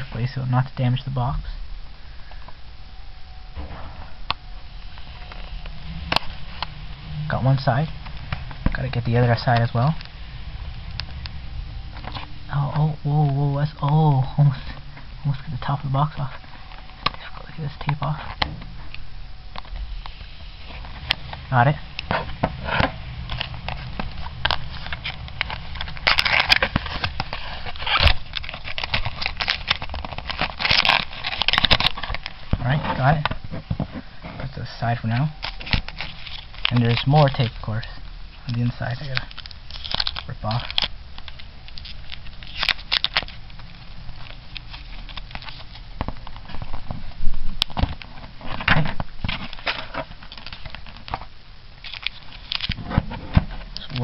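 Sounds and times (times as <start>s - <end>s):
cardboard and tape crackling: 3.2s - 54.0s
tape ripping off cardboard: 22.1s - 32.4s, 39.0s - 43.4s.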